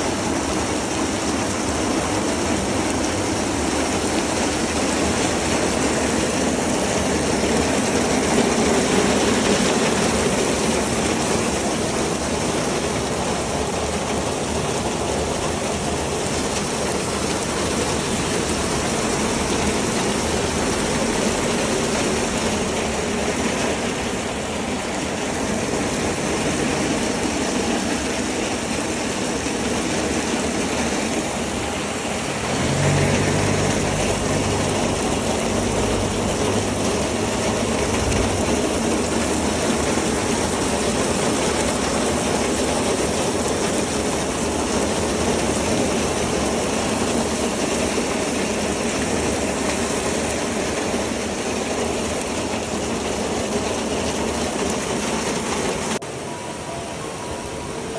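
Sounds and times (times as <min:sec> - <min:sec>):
train rushing rumble: 0:00.0 - 0:42.3.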